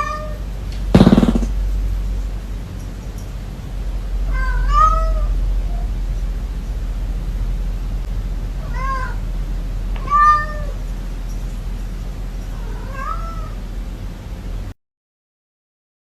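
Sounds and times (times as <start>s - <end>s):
steady low hum: 0.4s - 14.7s
cat meowing: 8.6s - 9.2s, 10.0s - 10.8s, 12.6s - 13.6s.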